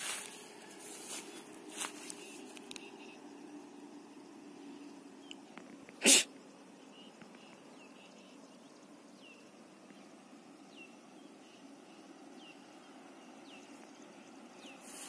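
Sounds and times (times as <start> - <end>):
faint background hum: 0.0 - 15.0.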